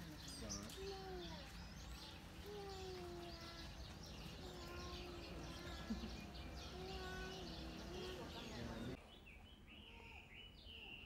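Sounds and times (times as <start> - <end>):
small birds chirping and calling: 0.0 - 11.0.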